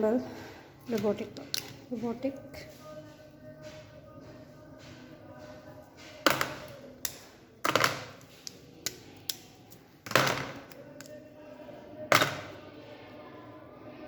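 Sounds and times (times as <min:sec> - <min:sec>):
plastic parts knocking and clicking: 0:06.0 - 0:11.1, 0:12.1 - 0:12.6.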